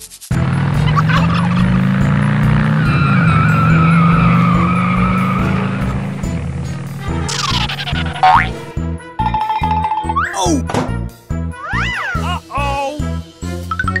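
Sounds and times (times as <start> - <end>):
background music: 0.0 - 14.0
car engine drone: 0.3 - 8.8
tyres squealing: 2.6 - 8.7.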